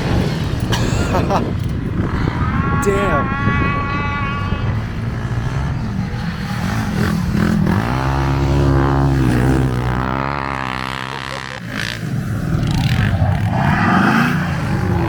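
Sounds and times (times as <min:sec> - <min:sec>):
small vehicle engine passing: 0:03.4 - 0:15.0.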